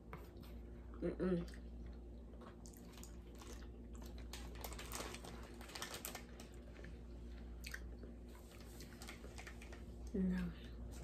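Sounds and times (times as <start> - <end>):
quiet chewing of cake: 0.0 - 4.4
faint low hum: 0.0 - 11.0
plastic wrapper crackling: 2.9 - 6.8, 8.6 - 9.8.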